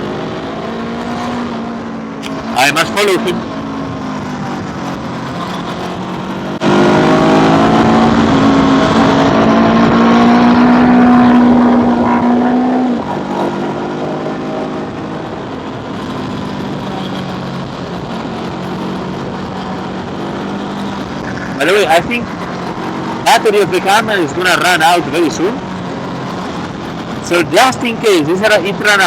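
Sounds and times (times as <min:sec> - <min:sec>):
wind noise: 0:00.0 - 0:23.3
motor scooter engine revving: 0:03.4 - 0:23.4.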